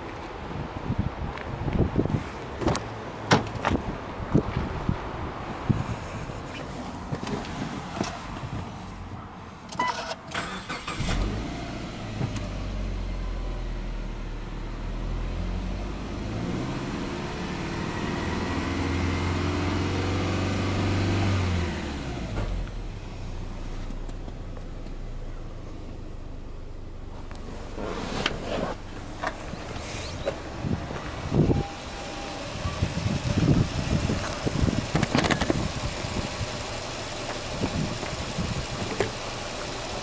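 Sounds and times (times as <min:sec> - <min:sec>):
car engine idling: 0:22.4 - 0:40.0.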